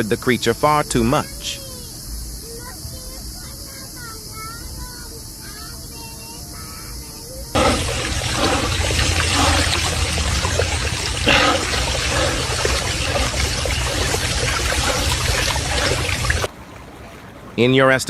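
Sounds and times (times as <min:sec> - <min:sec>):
loud rushing water: 0:07.6 - 0:17.7.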